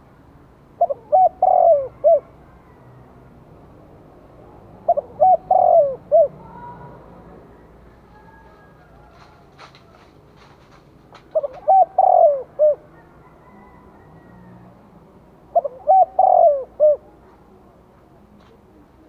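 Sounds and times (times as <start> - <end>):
dove cooing: 0.8 - 3.1, 4.5 - 17.8.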